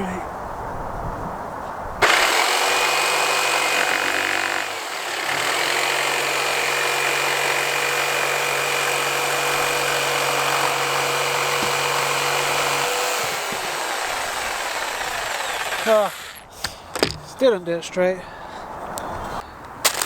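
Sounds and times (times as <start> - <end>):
power saw cutting wood: 2.0 - 16.5.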